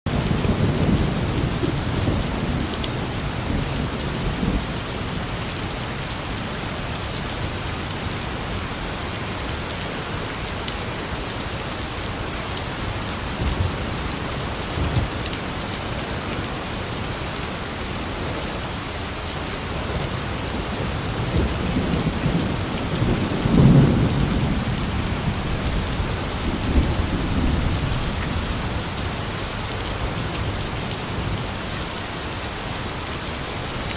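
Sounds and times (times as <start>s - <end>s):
rolling thunder rumbles: 0.1s - 5.5s, 12.9s - 16.7s, 19.8s - 31.6s
steady rain: 0.1s - 33.9s.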